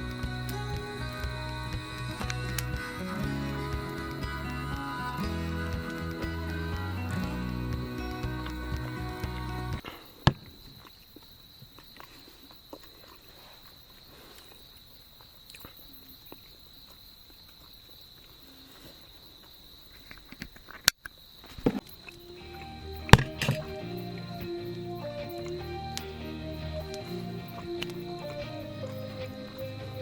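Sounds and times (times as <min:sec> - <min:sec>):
background music: 0:00.0 - 0:09.8, 0:22.2 - 0:30.0
insects trilling: 0:00.0 - 0:30.0.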